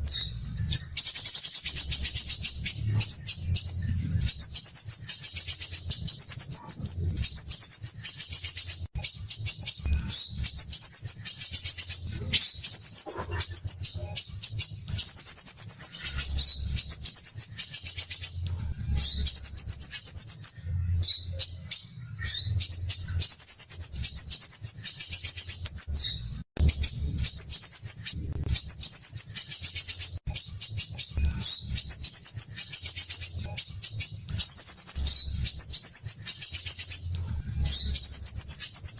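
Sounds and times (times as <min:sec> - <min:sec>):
bird singing rattling trills: 0:00.0 - 0:38.9.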